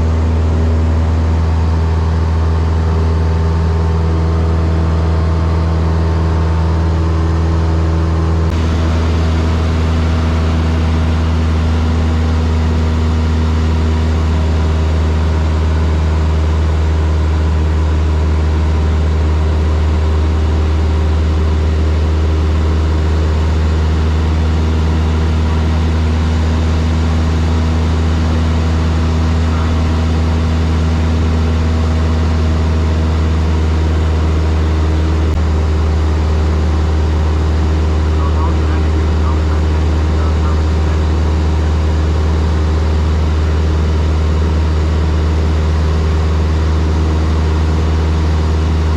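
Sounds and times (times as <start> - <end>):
light aircraft engine drone in cabin: 0.0 - 48.9.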